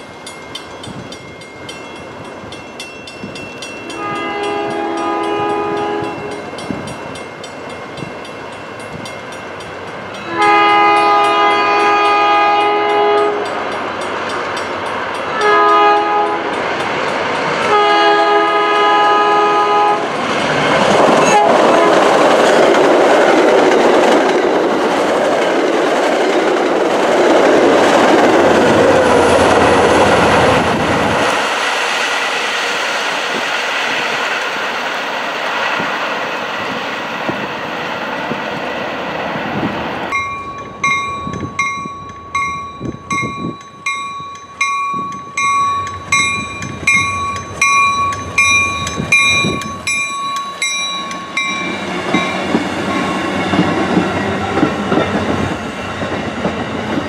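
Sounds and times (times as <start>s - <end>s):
train wheels on rails: 0.0s - 57.0s
train horn: 3.9s - 6.5s, 10.2s - 13.6s, 15.3s - 16.6s, 17.7s - 20.2s, 21.2s - 22.2s
diesel locomotive rumble: 8.9s - 57.0s.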